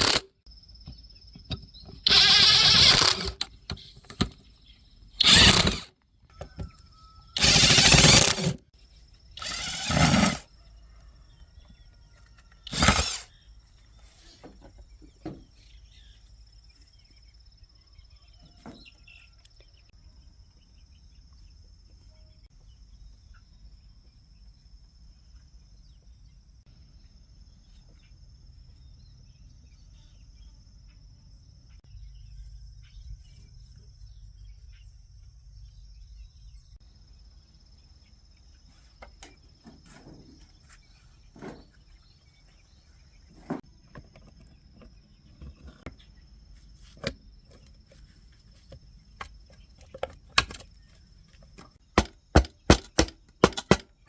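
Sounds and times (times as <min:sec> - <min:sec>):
sharp irregular knocks: 0:51.6 - 0:54.0.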